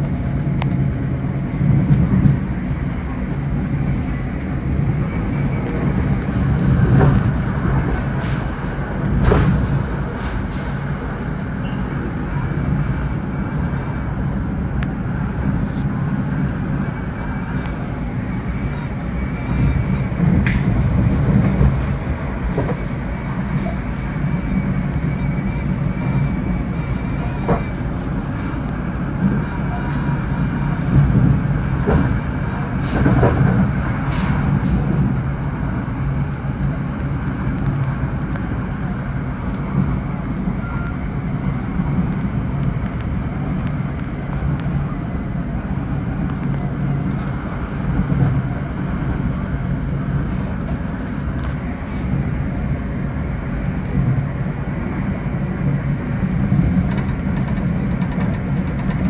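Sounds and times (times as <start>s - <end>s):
train running low rumble: 0.0s - 59.0s
wheel clicks and knocks: 56.8s - 59.0s.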